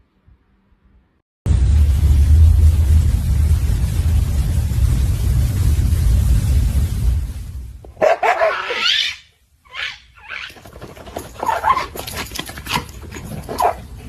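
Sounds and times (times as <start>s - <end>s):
low rumble: 1.5s - 8.0s
pet whining cries: 8.2s - 10.7s.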